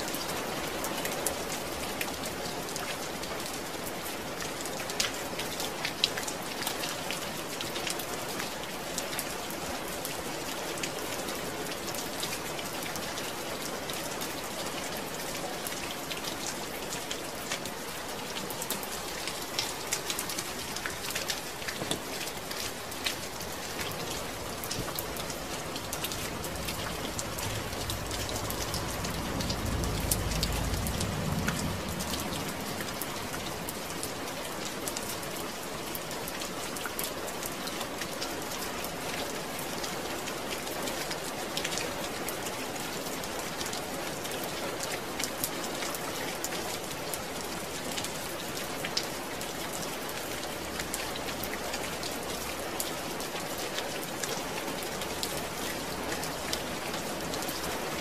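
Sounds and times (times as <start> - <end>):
rain falling on a surface: 0.0 - 58.0
sharp raindrop ticks: 18.4 - 38.4
low rumble: 25.5 - 33.6.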